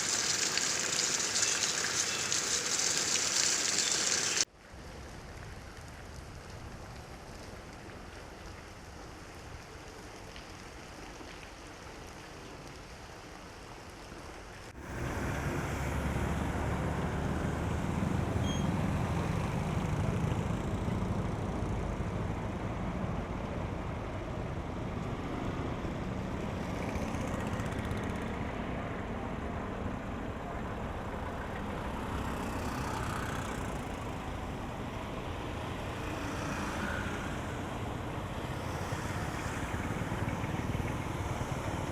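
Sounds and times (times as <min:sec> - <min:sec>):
heavy rain hissing: 0:00.0 - 0:04.5
vehicles rumbling on wet streets: 0:00.0 - 0:12.8, 0:14.3 - 0:41.9.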